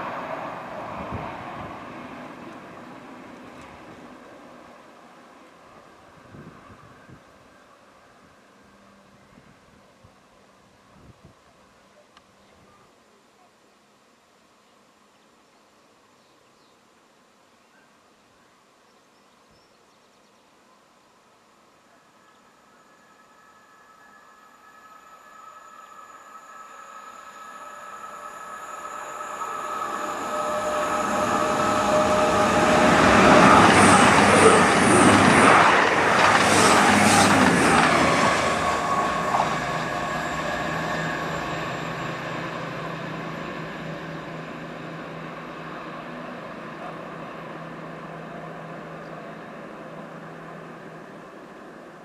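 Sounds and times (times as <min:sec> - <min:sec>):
train passing at speed: 0:00.0 - 0:09.7, 0:21.8 - 0:52.0
engine drone: 0:23.1 - 0:52.0.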